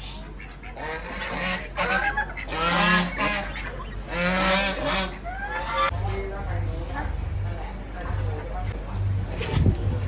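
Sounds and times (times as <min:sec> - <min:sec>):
geese honking: 0:00.0 - 0:06.5.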